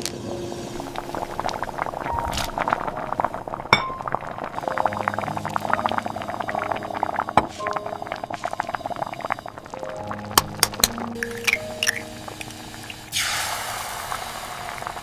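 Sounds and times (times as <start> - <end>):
soft background music: 0.0 - 13.8
dishes and utensils clinking: 10.4 - 12.2.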